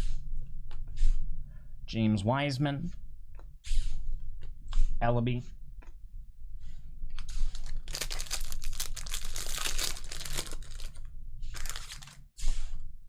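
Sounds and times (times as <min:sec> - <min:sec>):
plastic wrapper crinkling and tearing: 0:07.5 - 0:11.0, 0:11.6 - 0:12.2.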